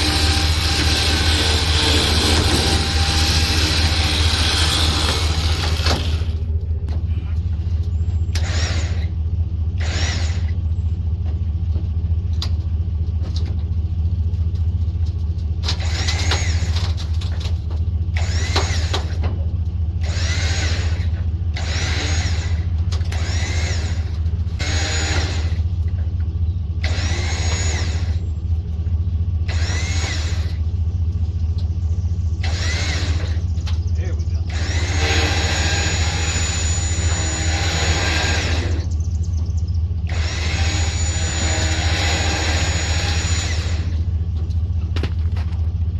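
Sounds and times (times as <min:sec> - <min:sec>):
low engine drone: 0:00.0 - 0:45.9
power unit whine bursts: 0:20.0 - 0:44.6.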